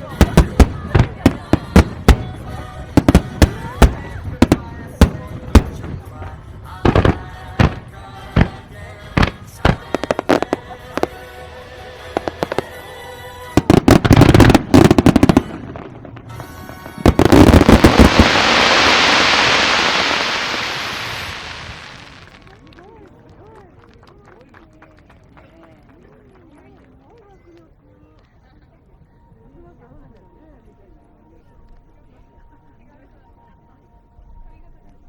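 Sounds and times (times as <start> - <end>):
fireworks bursting: 0.0 - 22.6
fireworks hissing crackle: 0.0 - 22.6.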